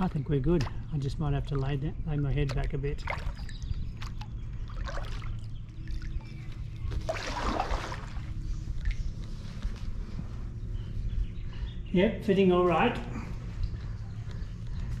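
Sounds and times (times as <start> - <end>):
low steady rumble: 0.0 - 15.0
paddle stroke splash: 7.0 - 9.1.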